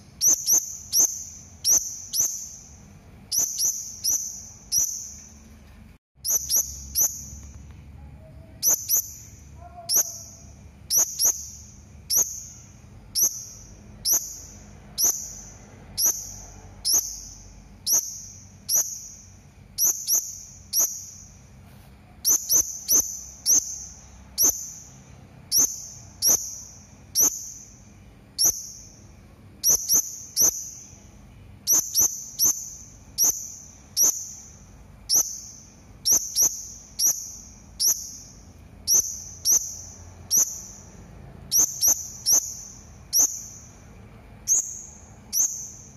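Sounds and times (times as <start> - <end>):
parrot shrill calls: 8.6 - 11.5.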